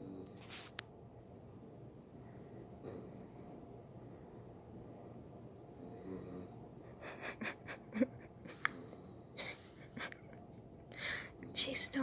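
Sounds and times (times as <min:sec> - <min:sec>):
dog snoring: 0:00.0 - 0:00.4, 0:02.6 - 0:03.6, 0:05.7 - 0:06.6.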